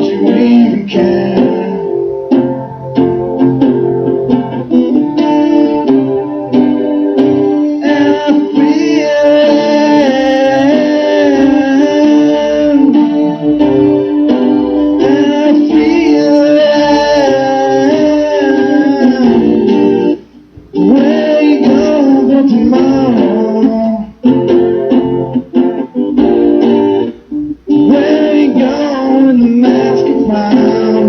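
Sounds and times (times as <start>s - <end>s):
person singing long notes: 0.0s - 2.2s, 7.3s - 13.9s, 14.8s - 24.2s, 27.7s - 31.0s
guitar strumming chords: 0.0s - 31.0s.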